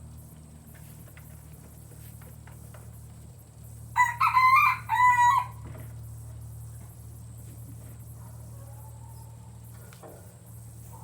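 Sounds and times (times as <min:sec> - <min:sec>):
rooster crowing: 0:04.0 - 0:05.6.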